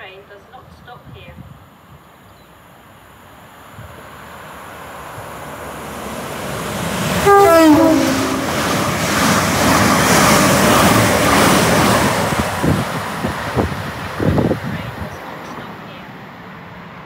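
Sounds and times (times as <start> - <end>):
train rushing past: 3.0 - 17.0
two-note train horn: 7.2 - 9.0.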